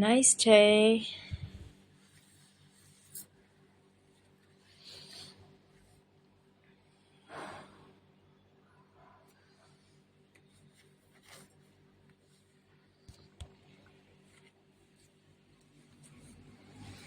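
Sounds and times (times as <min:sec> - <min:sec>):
low steady hum: 0:00.0 - 0:17.0
soft rustle: 0:01.2 - 0:06.2, 0:09.3 - 0:17.0.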